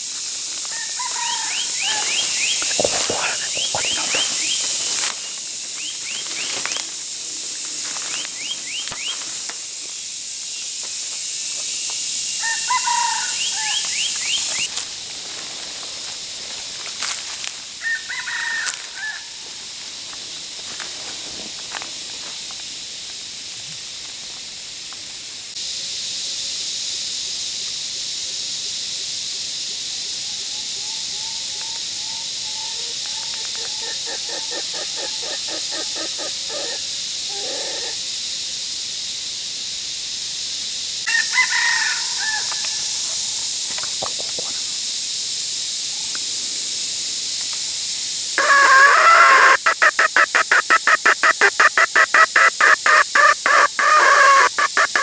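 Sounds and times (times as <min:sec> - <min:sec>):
steady high hiss: 0:00.0 - 0:55.0
rooster crowing: 0:00.6 - 0:04.6, 0:12.4 - 0:14.3, 0:17.8 - 0:19.4, 0:32.1 - 0:38.0, 0:41.1 - 0:43.3, 0:48.4 - 0:55.0
rapidly pulsing call: 0:00.8 - 0:07.4, 0:48.4 - 0:55.0.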